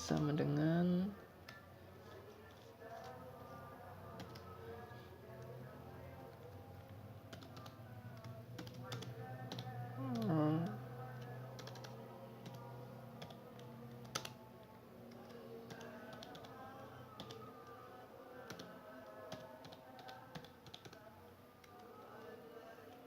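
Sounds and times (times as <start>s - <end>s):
soft background music: 0.0s - 23.0s
keyboard typing clicks: 4.1s - 4.5s, 7.3s - 10.4s, 11.2s - 12.6s, 13.2s - 14.4s, 15.1s - 16.6s, 17.2s - 17.8s, 18.4s - 21.0s.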